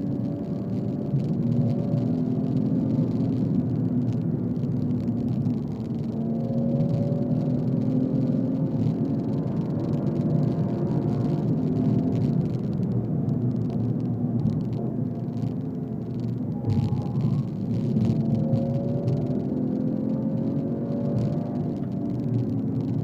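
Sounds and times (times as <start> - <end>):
road and tyre noise: 0.0 - 23.0.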